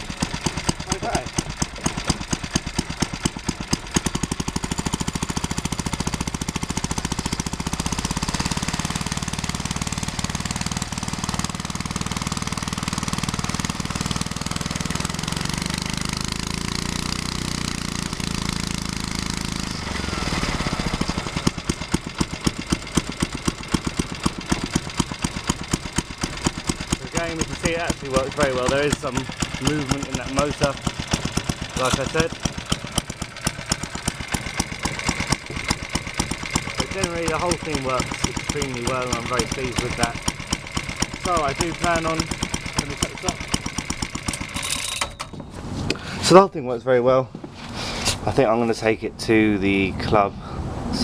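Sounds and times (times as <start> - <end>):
small petrol engine chugging: 0.0 - 46.6.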